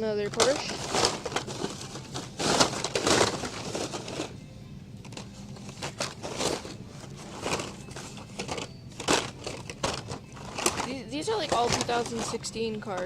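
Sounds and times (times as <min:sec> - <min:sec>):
toy cars rustling and clacking: 0:05.8 - 0:13.0.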